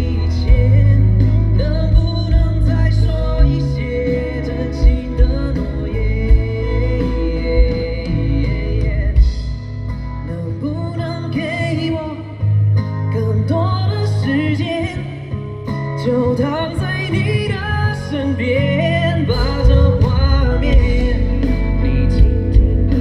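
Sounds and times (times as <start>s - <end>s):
bass: 0.0s - 23.0s
guitar: 0.0s - 23.0s
man singing: 0.0s - 23.0s.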